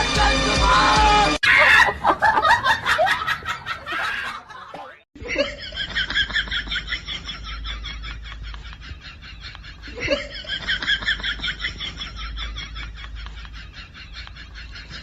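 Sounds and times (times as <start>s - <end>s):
music: 0.0s - 1.4s
person laughing in rhythmic bursts: 1.4s - 15.0s.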